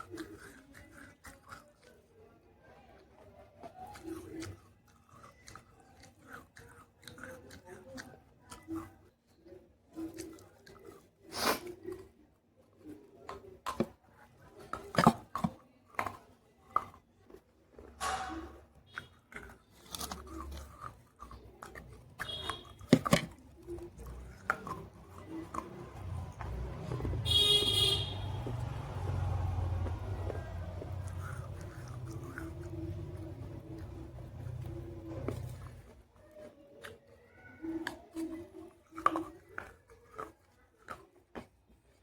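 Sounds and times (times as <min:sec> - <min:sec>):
soft chewing: 0:00.0 - 0:42.0
clay pot crunching: 0:13.4 - 0:36.4.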